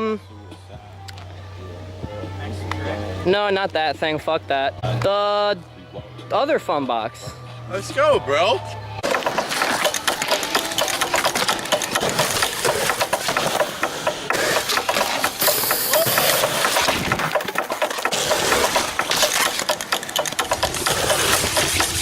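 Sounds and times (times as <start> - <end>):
skateboard knocks: 9.0 - 22.0
skateboard wheels rolling on concrete: 9.0 - 22.0.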